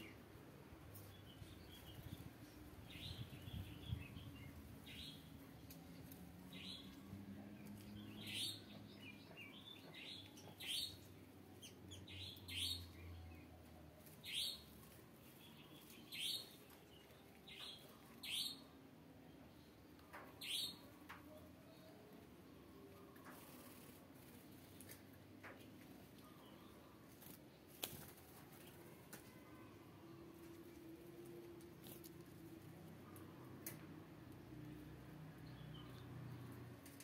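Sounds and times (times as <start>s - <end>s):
small birds chirping: 0.9s - 37.0s.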